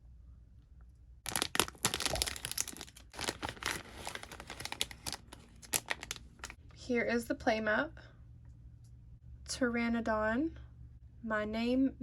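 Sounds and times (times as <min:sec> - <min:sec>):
plastic package crinkling: 0:01.3 - 0:06.6.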